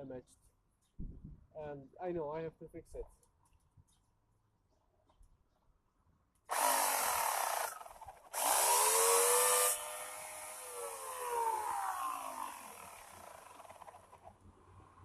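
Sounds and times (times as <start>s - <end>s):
chainsaw cutting hedge branches: 6.5s - 14.4s.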